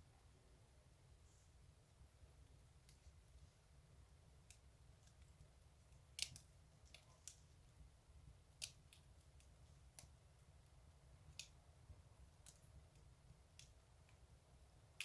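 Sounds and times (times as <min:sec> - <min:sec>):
fire crackling and popping: 0:04.4 - 0:14.4.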